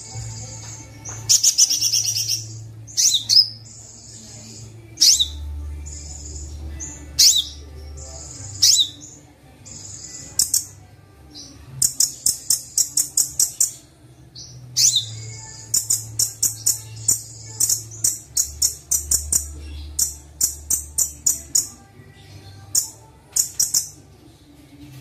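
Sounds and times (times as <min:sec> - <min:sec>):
bird chirping: 0:00.0 - 0:10.8, 0:11.4 - 0:24.0.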